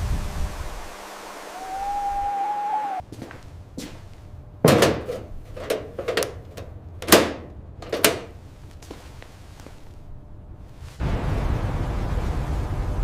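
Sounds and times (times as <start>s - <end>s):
steady whistling tone: 1.4s - 3.0s
heavy thumps: 4.6s - 9.0s.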